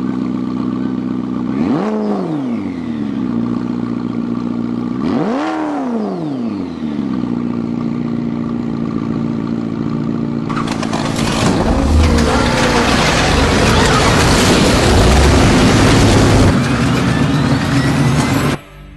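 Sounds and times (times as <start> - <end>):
car engine idling and revving: 0.0 - 18.9
loud rushing noise: 10.6 - 17.9.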